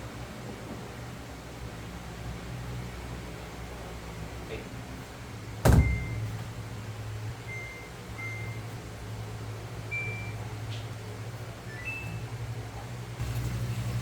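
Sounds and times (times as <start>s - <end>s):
steady low hum: 0.0s - 14.0s
washing machine control panel beeping: 5.7s - 6.6s, 7.4s - 8.8s, 9.9s - 10.5s, 11.6s - 12.5s.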